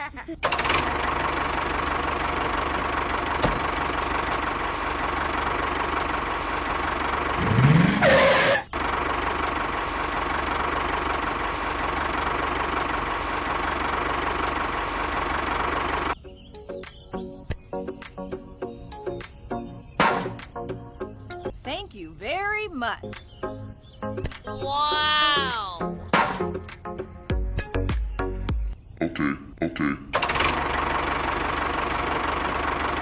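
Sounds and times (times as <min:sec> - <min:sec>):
motor running steadily: 0:00.4 - 0:16.2, 0:30.2 - 0:33.0.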